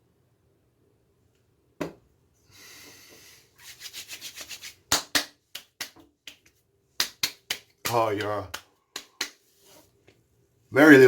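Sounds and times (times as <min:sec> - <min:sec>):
hands patting face: 0:03.0 - 0:09.6.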